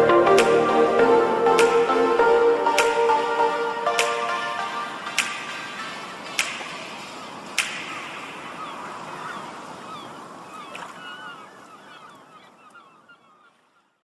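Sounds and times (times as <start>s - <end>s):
steady rushing noise: 0.0s - 10.4s
birds chirping: 0.0s - 14.0s.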